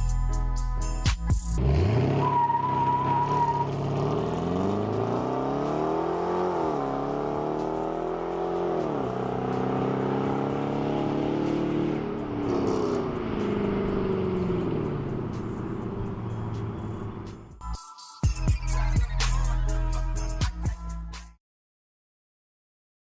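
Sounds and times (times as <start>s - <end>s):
car engine accelerating hard: 1.6s - 17.5s.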